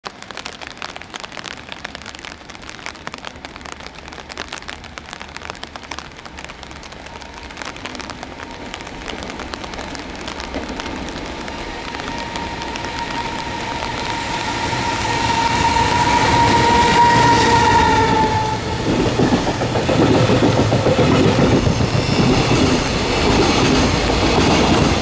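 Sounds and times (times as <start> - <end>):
freight train rumbling: 6.9 - 25.0
locomotive whine: 11.2 - 19.8.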